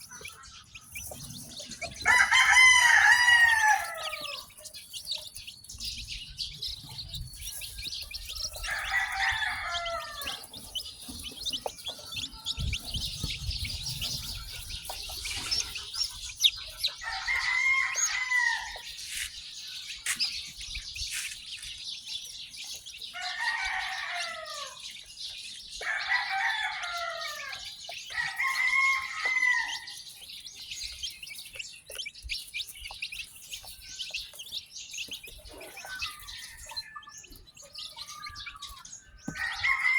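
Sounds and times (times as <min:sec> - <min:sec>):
chicks peeping: 0:00.0 - 0:39.9
adult chicken calling: 0:00.1 - 0:04.7, 0:08.4 - 0:20.3.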